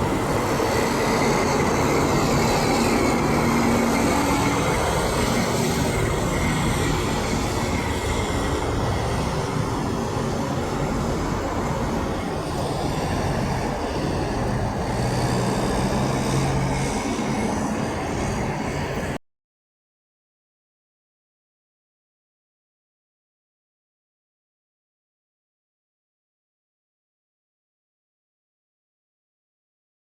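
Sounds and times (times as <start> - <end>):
heavy traffic rumbling past: 0.0 - 19.2
low engine drone: 0.0 - 19.2.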